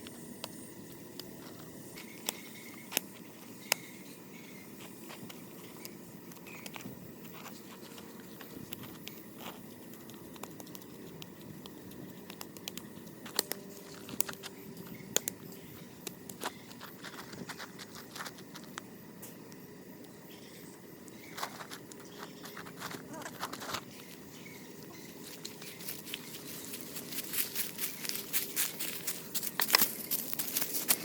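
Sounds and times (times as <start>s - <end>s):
low background noise: 0.0s - 31.0s
small clicks and taps: 4.8s - 15.4s.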